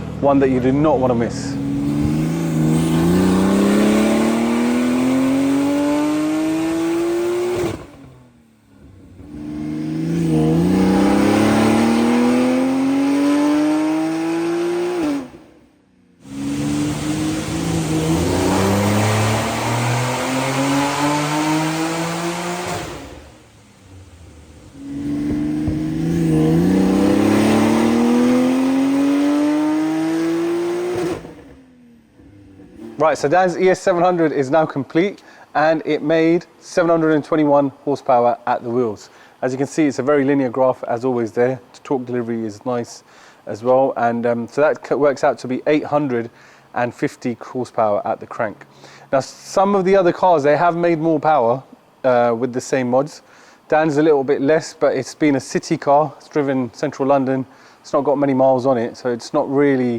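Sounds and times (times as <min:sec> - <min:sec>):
car engine revving at full throttle: 0:00.0 - 0:33.3.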